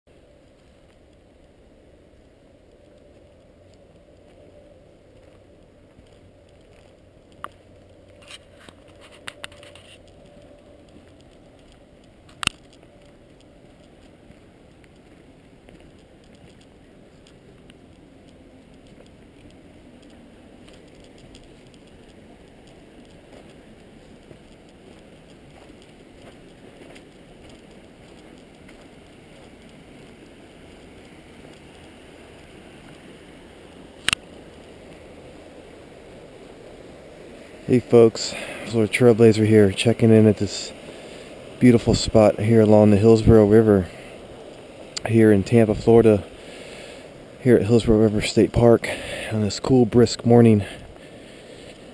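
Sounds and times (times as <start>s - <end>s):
sharp clicks: 6.0s - 14.1s, 34.0s - 34.6s.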